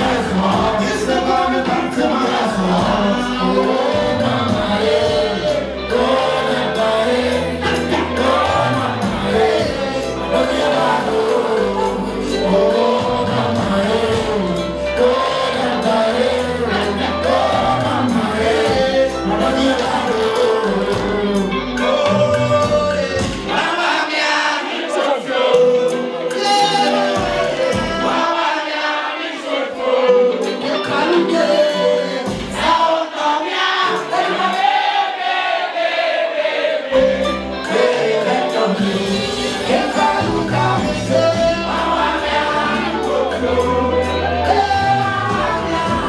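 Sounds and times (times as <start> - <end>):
deep bass: 0.0 - 23.5, 39.0 - 46.0
band track: 0.0 - 35.4, 36.9 - 46.0
many voices singing together: 0.0 - 46.0.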